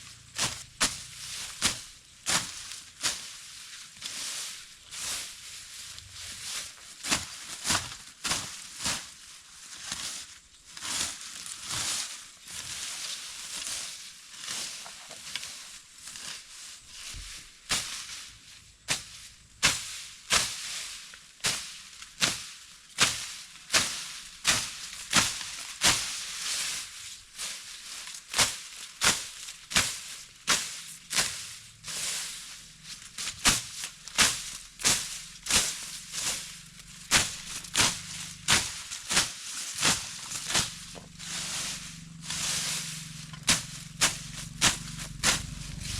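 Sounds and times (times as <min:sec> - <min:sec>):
knife chopping fruit stems: 0:33.2 - 0:45.9.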